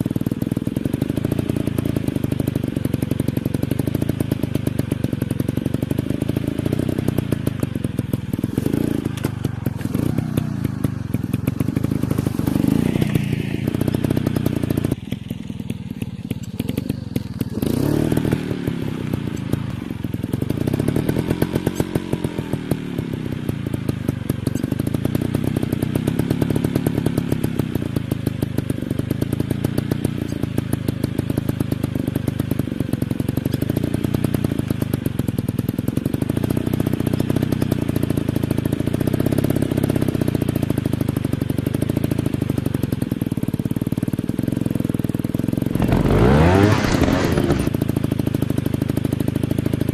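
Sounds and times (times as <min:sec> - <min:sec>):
dirt bike engine revving: 0:06.0 - 0:15.0, 0:16.6 - 0:19.9, 0:45.7 - 0:47.8.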